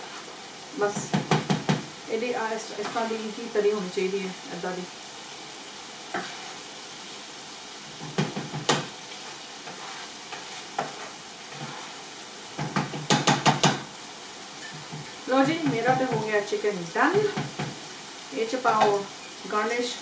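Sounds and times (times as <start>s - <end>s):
gravy sizzling in a pan: 0.0s - 20.0s
spoon scraping and knocking pan: 0.9s - 1.9s, 6.1s - 6.6s, 7.9s - 13.9s, 14.6s - 17.9s, 18.7s - 19.4s.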